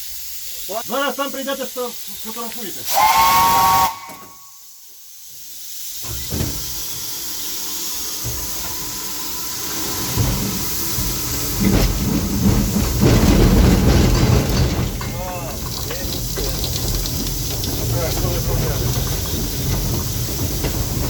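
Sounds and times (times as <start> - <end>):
steam hissing: 0.0 - 21.0
locomotive rumble with knocking: 9.7 - 21.0.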